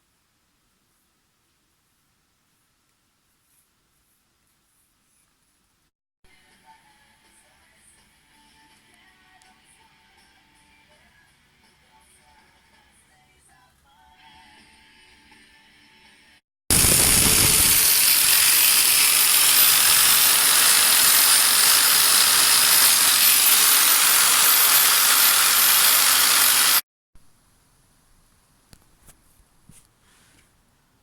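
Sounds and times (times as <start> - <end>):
power tool running: 16.7 - 26.8.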